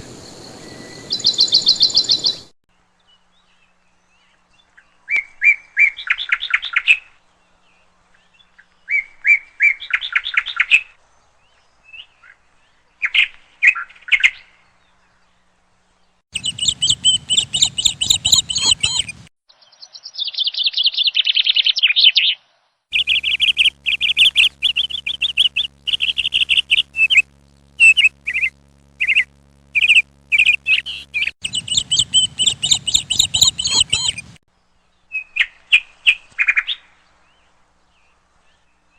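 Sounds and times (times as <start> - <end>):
bird chirping and twittering: 0.0 - 2.5, 16.4 - 38.7.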